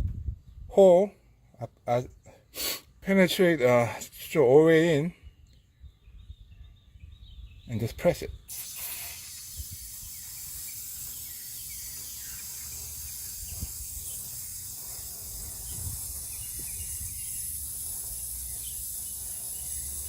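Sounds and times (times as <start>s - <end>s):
aerosol spray hissing: 8.5s - 20.0s.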